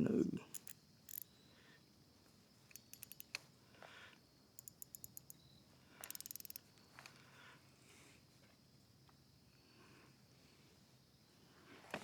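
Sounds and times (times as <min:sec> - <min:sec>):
fishing reel clicks: 0:00.5 - 0:01.2, 0:02.7 - 0:03.4, 0:04.6 - 0:05.4, 0:06.0 - 0:06.6.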